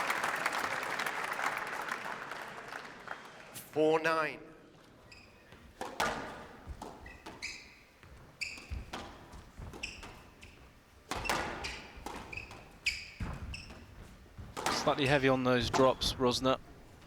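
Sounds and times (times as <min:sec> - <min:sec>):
shoes squeaking on court floor: 0:04.9 - 0:17.0
squash ball cracking off rackets: 0:05.7 - 0:07.4, 0:11.0 - 0:15.0.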